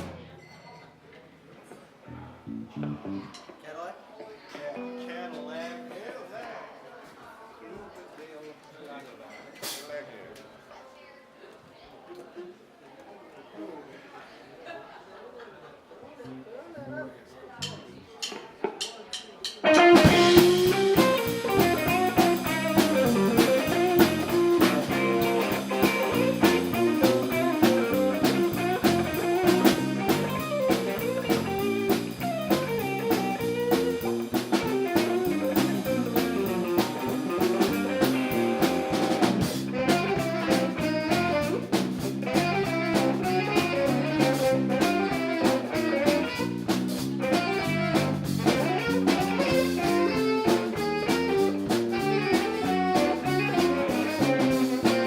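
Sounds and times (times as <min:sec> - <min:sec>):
live band playing jazz-blues: 0:02.4 - 0:03.4, 0:19.4 - 0:55.0.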